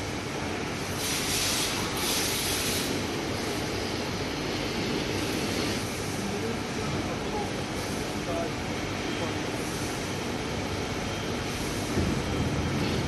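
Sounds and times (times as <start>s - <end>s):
panel bender machine running: 0.0s - 13.0s
pneumatic hiss: 0.9s - 3.8s, 4.5s - 6.2s.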